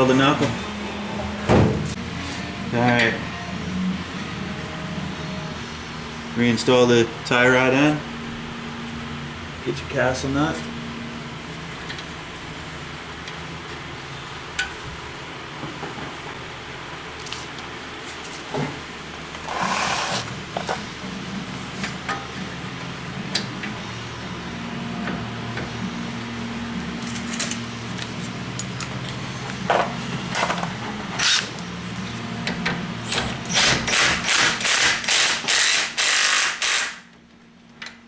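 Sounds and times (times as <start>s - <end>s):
power tool bursts: 19.5s - 20.3s, 33.6s - 37.0s.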